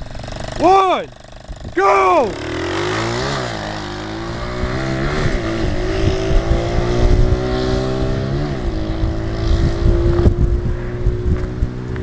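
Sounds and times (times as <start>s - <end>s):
wind noise on microphone: 1.4s - 2.1s, 3.2s - 12.0s
small engine revving hard: 2.0s - 11.4s.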